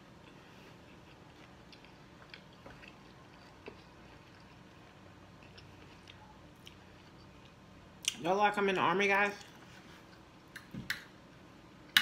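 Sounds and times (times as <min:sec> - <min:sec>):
faint chewing: 0:00.2 - 0:08.2.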